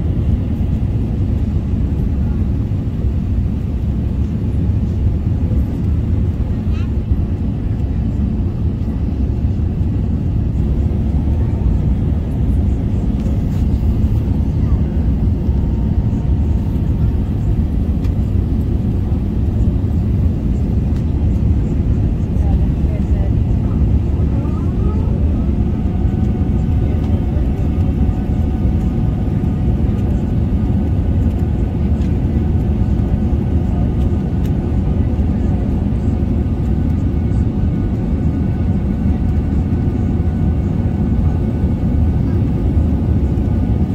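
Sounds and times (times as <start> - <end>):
airplane cabin engine rumble: 0.0 - 43.9.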